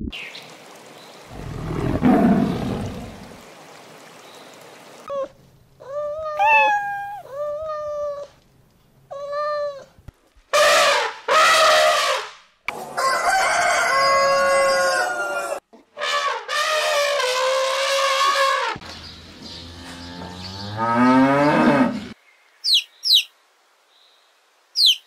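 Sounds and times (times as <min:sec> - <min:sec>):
cat meowing: 0:06.3 - 0:07.3
rooster crowing: 0:12.9 - 0:15.6.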